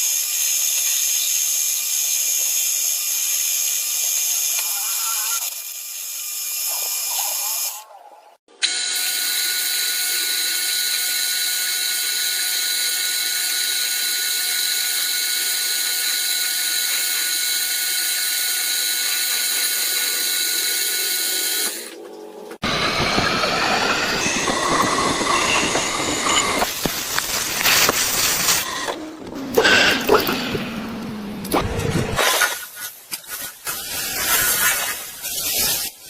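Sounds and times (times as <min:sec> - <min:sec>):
machine tool whining: 0:08.6 - 0:32.2
rough cutting sound: 0:22.6 - 0:36.0.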